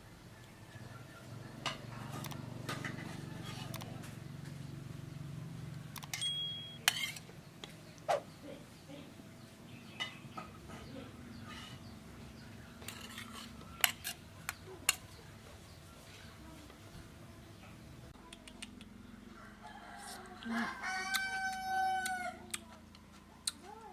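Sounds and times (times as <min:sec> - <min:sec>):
low steady background hum: 0:00.0 - 0:23.9
utensils and dishes clinking: 0:06.0 - 0:07.3.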